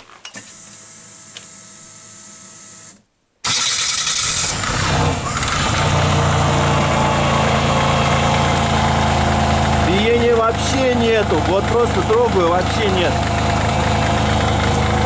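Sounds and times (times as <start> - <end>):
car engine starting and idling: 3.4 - 15.0.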